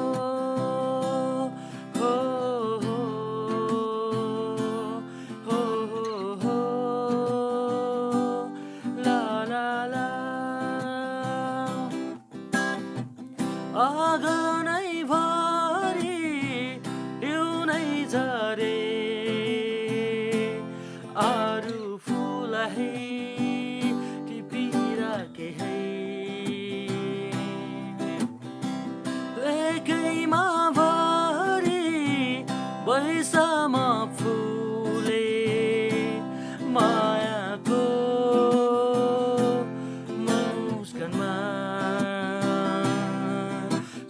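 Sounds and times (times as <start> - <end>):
acoustic guitar accompaniment: 0.0 - 44.0.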